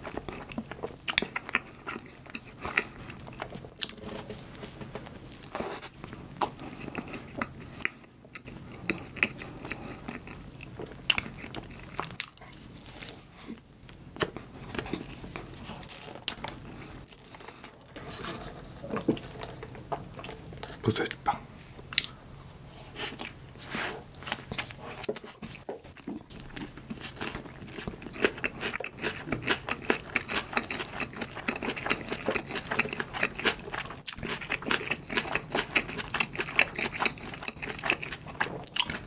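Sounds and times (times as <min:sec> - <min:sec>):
chewing with wet clicks: 0:00.0 - 0:04.0, 0:06.1 - 0:12.5, 0:21.9 - 0:22.2, 0:24.2 - 0:39.0.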